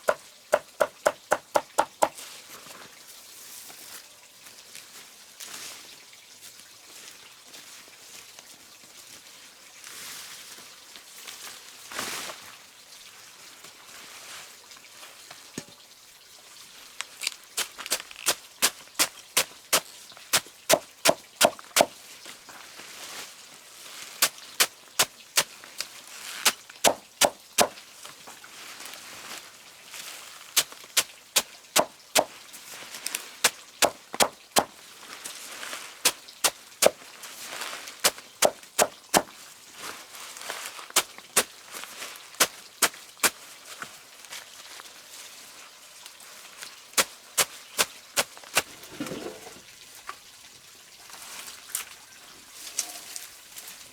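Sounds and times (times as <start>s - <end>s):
hand tool striking wood: 0.0s - 2.2s, 17.6s - 21.9s, 26.4s - 27.8s, 31.8s - 32.3s, 33.4s - 34.7s, 38.0s - 39.3s.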